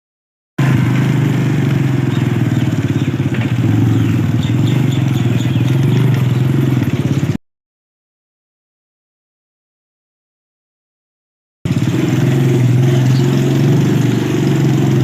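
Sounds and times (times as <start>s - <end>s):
motorcycle engine running: 0.6s - 7.4s, 11.7s - 15.0s.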